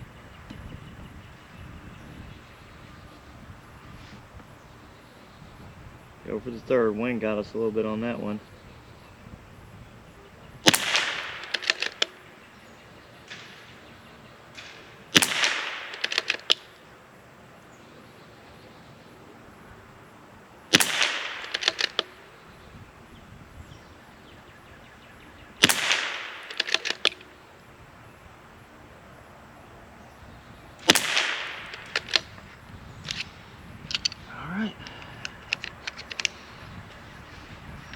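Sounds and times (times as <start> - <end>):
rifle shots: 10.6 - 12.3, 14.6 - 16.8, 20.7 - 22.4, 25.6 - 27.4, 30.8 - 37.4
rifle bolt clicks: 10.7 - 12.2, 14.6 - 16.7, 20.7 - 22.2, 25.6 - 27.3, 30.8 - 33.3, 33.9 - 34.2, 34.8 - 36.6.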